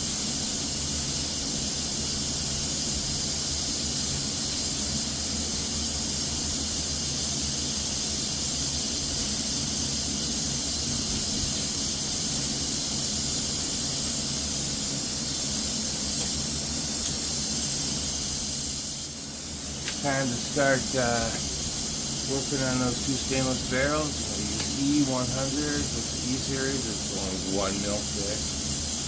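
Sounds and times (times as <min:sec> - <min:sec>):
rushing air hiss: 0:07.5 - 0:29.0.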